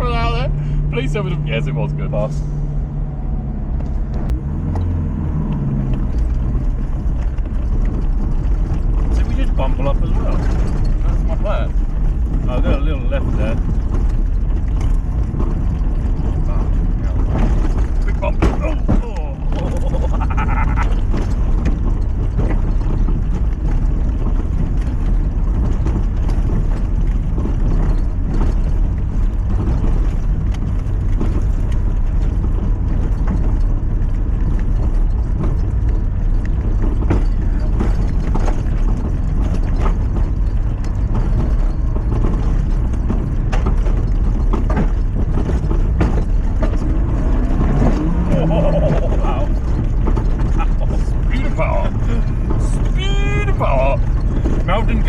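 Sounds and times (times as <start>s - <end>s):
car engine and road drone: 0.0s - 55.0s
knocks and rattles over bumps: 0.0s - 55.0s.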